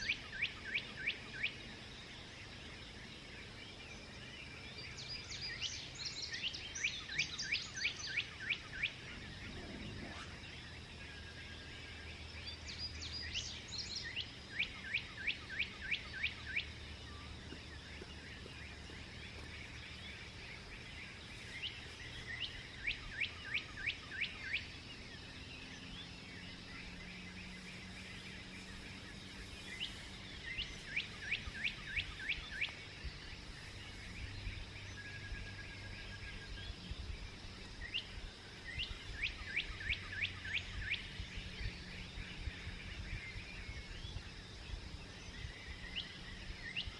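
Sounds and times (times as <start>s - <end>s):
songbird singing: 0.0s - 46.9s.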